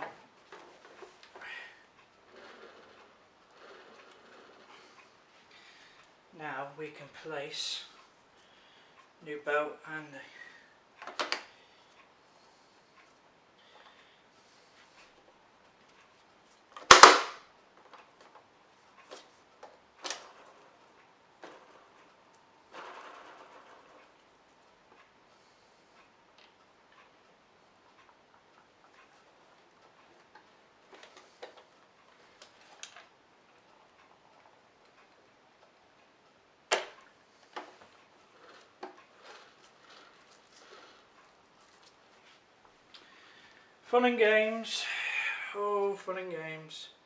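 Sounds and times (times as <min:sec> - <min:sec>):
vacuum parts clicking and knocking: 0:00.0 - 0:06.1, 0:11.0 - 0:11.6, 0:16.7 - 0:25.1, 0:28.8 - 0:35.8, 0:36.6 - 0:43.6
plastic parts snapping together: 0:16.8 - 0:17.4.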